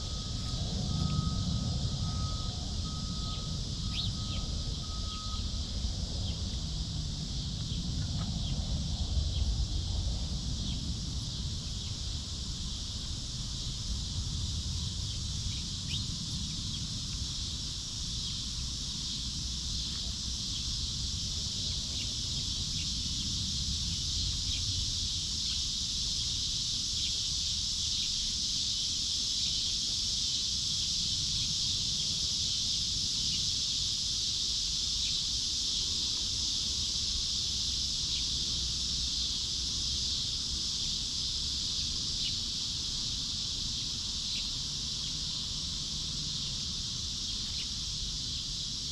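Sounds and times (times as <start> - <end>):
low wind rumble: 0.0 - 27.8
high insect chorus droning: 0.0 - 48.9.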